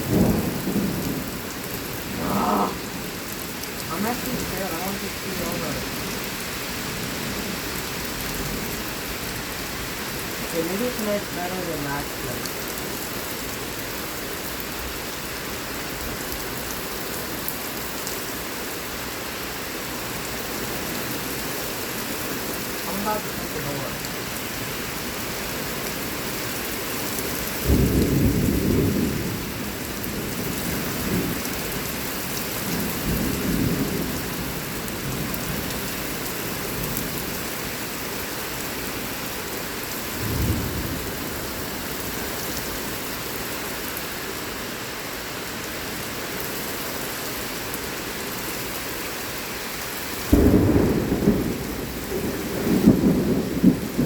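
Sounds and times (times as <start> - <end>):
thunder rumbling: 0.0 - 6.0, 27.6 - 31.4, 40.2 - 41.7, 50.3 - 54.0
heavy rain hissing: 0.0 - 14.3, 19.9 - 54.0.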